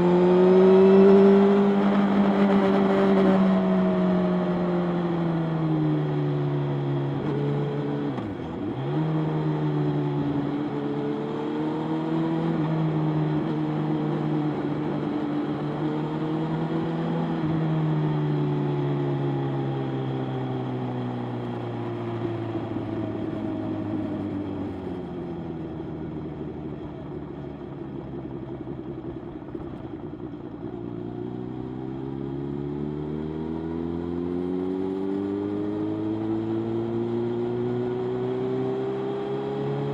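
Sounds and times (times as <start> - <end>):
motorcycle engine running: 20.8 - 33.4.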